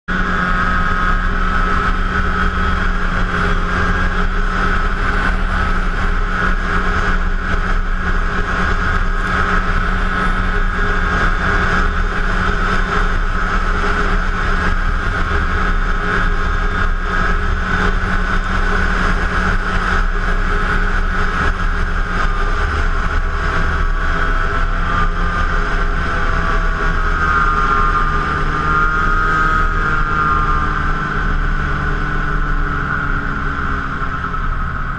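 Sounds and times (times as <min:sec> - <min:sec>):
snowmobile engine running: 0:00.0 - 0:34.9.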